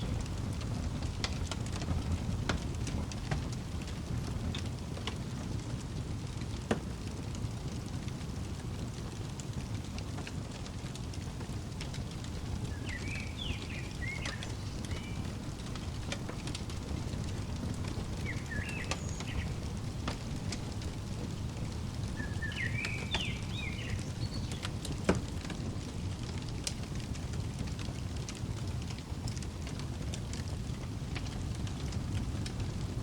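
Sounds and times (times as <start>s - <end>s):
wood fire crackling and popping: 0.0s - 33.0s
songbird chirping: 11.8s - 26.5s.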